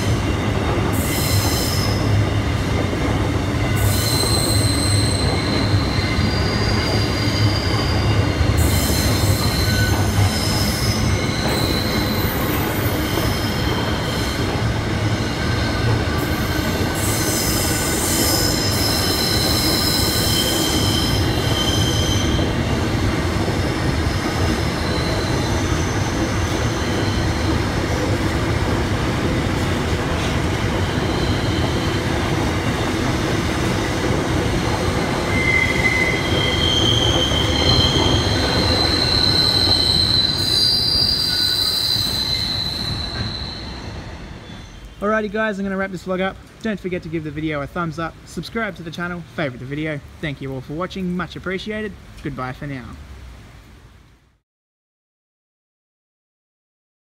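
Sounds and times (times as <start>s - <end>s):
freight train wheels rumbling: 0.0s - 51.0s
wheel squeal: 3.6s - 22.7s, 24.5s - 27.6s, 30.2s - 32.8s, 35.2s - 45.0s.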